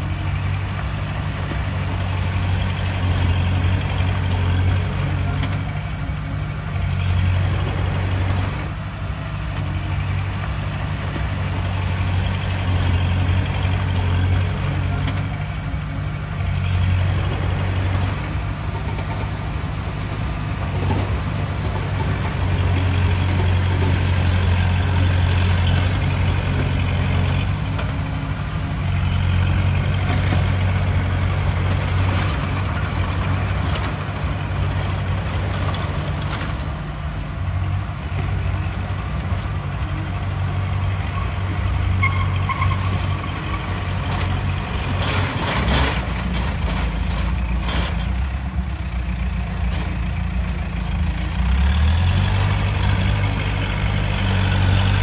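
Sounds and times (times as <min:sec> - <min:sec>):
diesel machinery engine: 0:00.0 - 0:55.0.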